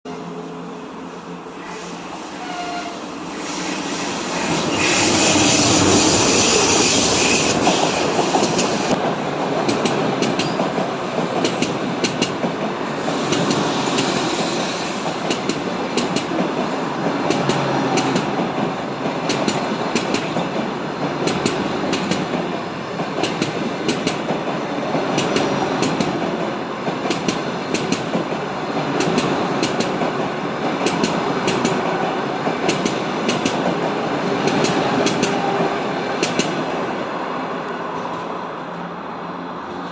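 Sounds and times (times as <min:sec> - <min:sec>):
passenger train rushing past: 0:00.1 - 0:39.9
train wheels clacking: 0:04.3 - 0:36.8.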